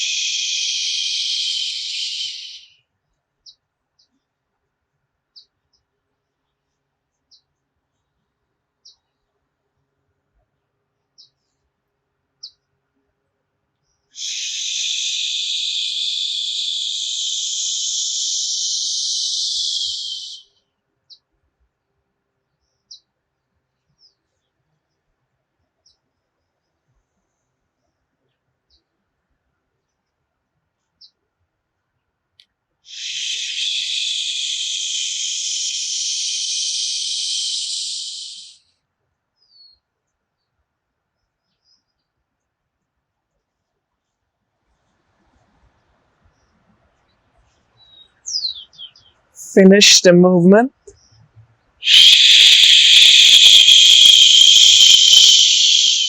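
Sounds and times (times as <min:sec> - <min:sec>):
person exhaling a hissing shhh: 0:14.2 - 0:15.3, 0:32.9 - 0:37.6
person breathing out shhh: 0:32.9 - 0:33.6.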